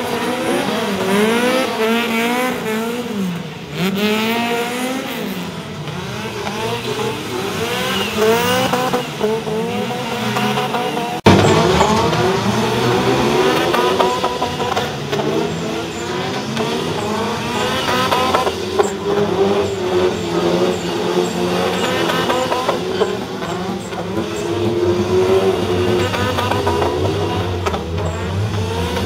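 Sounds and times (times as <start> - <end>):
car engine revving: 0.0 - 29.0
sharp crack: 11.2 - 15.3.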